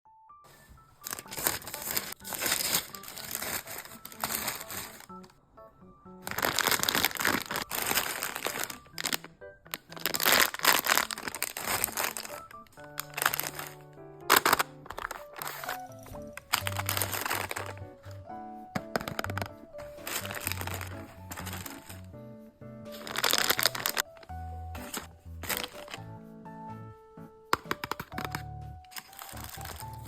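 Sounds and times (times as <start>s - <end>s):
background music: 0.1s - 30.0s
plastic packaging crinkling: 0.6s - 5.3s, 6.2s - 18.2s, 18.8s - 22.1s, 22.9s - 26.1s, 27.6s - 30.0s.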